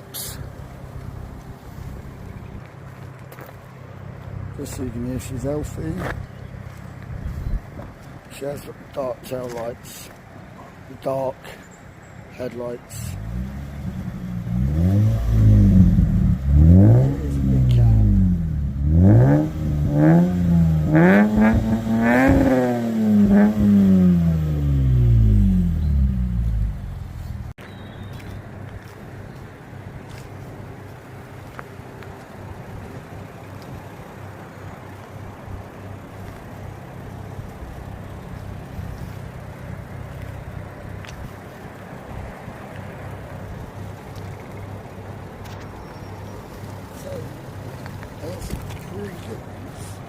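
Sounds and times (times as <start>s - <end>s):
car engine idling: 0.0s - 10.8s, 12.7s - 27.6s, 29.8s - 50.0s
car engine revving: 13.0s - 27.6s.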